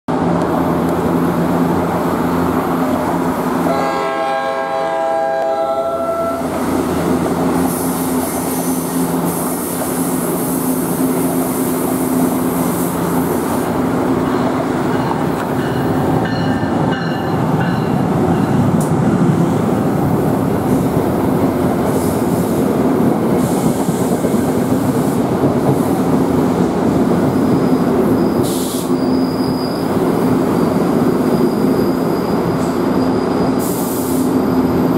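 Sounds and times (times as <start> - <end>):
train rumbling past platform: 0.1 - 34.9
train horn chord: 3.7 - 6.5
high brake squeal: 27.4 - 34.6.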